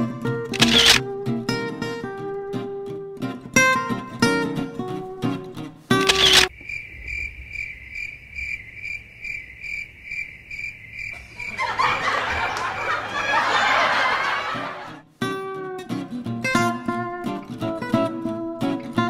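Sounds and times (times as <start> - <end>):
cricket chirping: 6.0 - 12.3
snickering laughter: 11.2 - 15.0.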